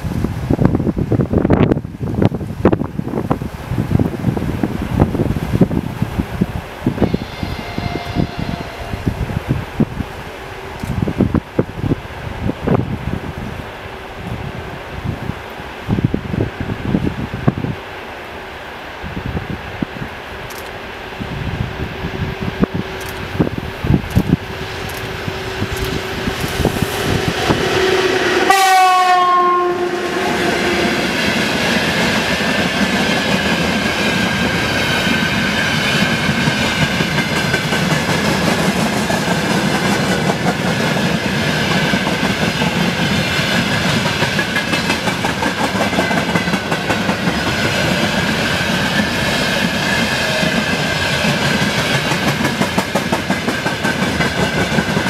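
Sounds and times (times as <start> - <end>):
freight train wheels rumbling: 0.0 - 55.0
locomotive horn blast: 6.8 - 9.8, 25.1 - 31.1
clickety-clack over rail joints: 31.3 - 55.0.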